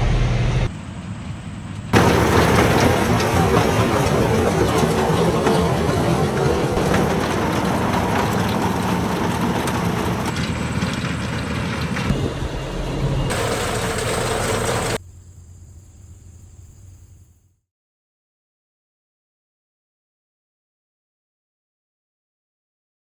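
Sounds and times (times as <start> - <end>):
tractor engine with mower: 0.0 - 15.2.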